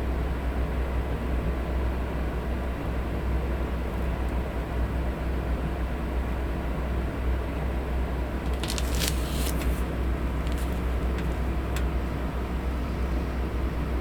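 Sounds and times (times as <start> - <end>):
paper rustling: 8.4 - 11.5.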